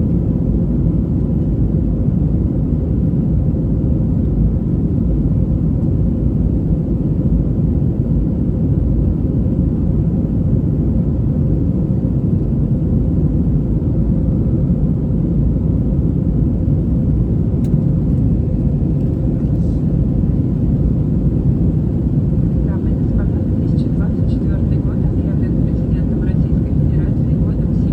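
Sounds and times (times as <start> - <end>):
airplane cabin engine rumble: 0.0 - 27.9
faint steady hum: 17.1 - 27.9.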